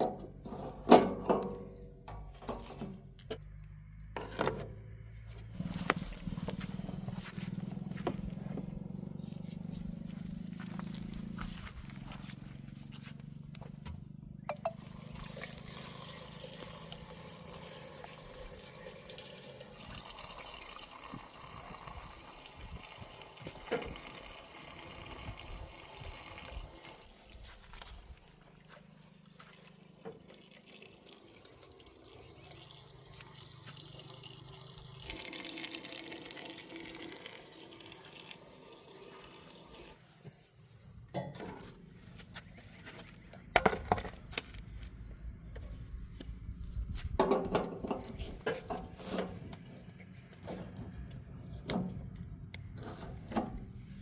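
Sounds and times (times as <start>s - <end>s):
water splashing and running: 14.8s - 40.1s.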